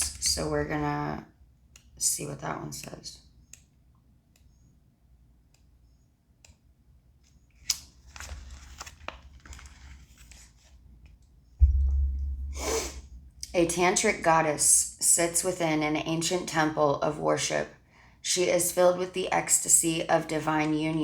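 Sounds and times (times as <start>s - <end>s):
click: 6.4s - 6.6s
paper pages rustling and flipping: 7.2s - 11.1s
dull thump: 11.6s - 13.2s.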